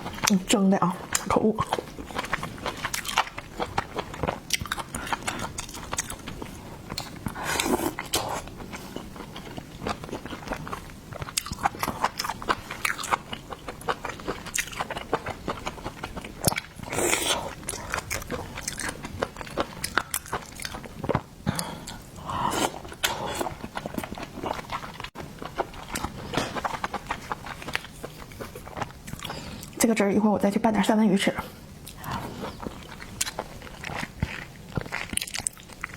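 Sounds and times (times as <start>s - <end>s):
person biting and chewing: 1.1s - 22.0s, 31.9s - 35.9s.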